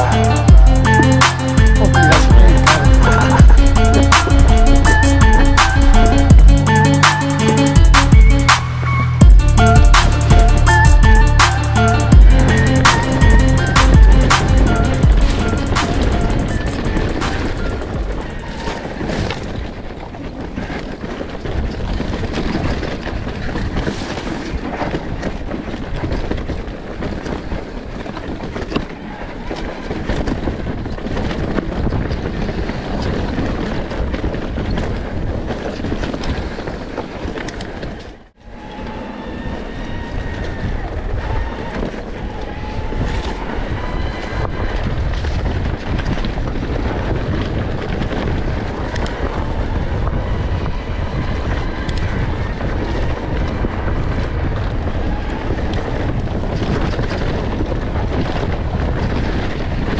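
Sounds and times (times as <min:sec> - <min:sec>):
motorcycle engine running: 0:00.0 - 0:19.6
wind rumble on microphone: 0:12.0 - 0:59.9.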